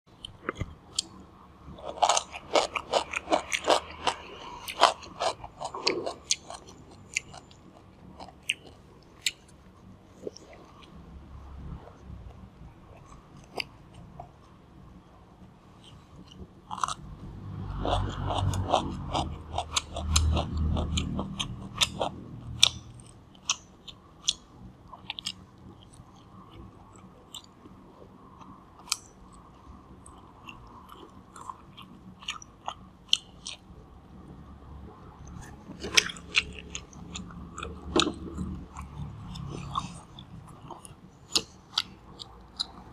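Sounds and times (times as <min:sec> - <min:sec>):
crunching pickle bites: 0:00.2 - 0:09.6, 0:15.8 - 0:17.1, 0:17.7 - 0:27.6, 0:30.0 - 0:33.7, 0:35.3 - 0:42.9
wet mouth clicks: 0:35.1 - 0:42.9.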